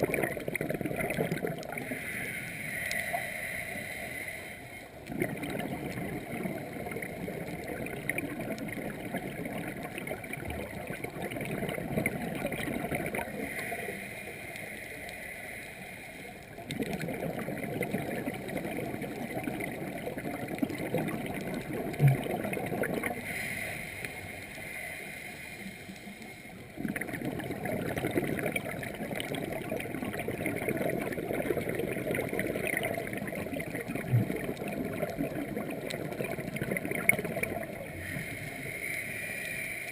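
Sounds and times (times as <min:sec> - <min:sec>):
regulator exhalation bubbling: 0:00.0 - 0:02.0, 0:05.0 - 0:13.8, 0:16.6 - 0:23.5, 0:26.7 - 0:38.7
regulator inhalation hiss: 0:01.8 - 0:04.9, 0:13.4 - 0:16.4, 0:23.2 - 0:26.6, 0:38.0 - 0:39.9.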